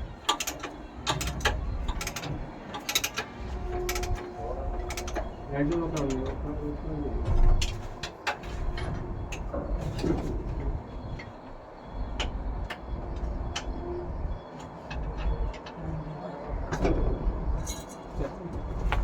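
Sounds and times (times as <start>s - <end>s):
low rumble: 3.3s - 17.8s.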